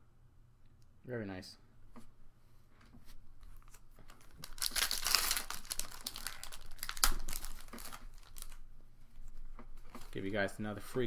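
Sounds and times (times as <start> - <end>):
foil wrapper crinkling and tearing: 3.5 - 8.6.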